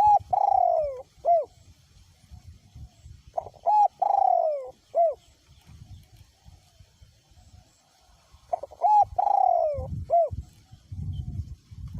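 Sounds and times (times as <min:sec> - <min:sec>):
dove cooing: 0:00.0 - 0:01.6, 0:03.3 - 0:05.3, 0:08.5 - 0:10.6
wind rumble on microphone: 0:00.0 - 0:11.9.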